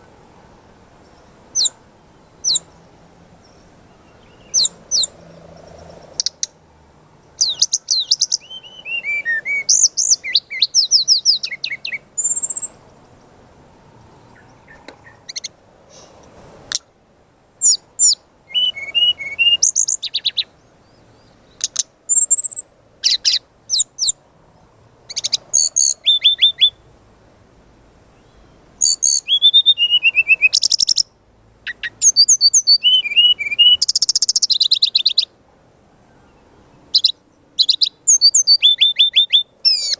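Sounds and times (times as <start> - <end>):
bird singing whistles and trills: 1.5 - 1.8, 2.4 - 2.7, 3.4 - 6.6, 7.4 - 12.8, 17.6 - 24.2, 25.1 - 26.8, 28.2 - 35.3, 36.2 - 39.9.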